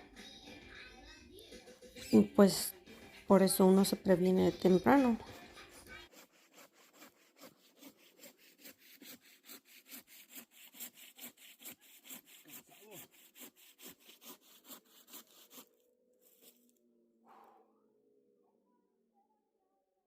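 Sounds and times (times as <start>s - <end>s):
hand saw cutting wood: 5.0s - 16.6s.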